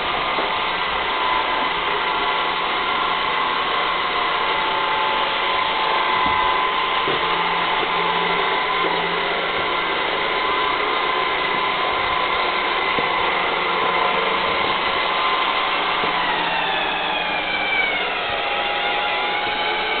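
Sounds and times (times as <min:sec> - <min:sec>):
robot vacuum cleaner running: 0:00.0 - 0:20.0.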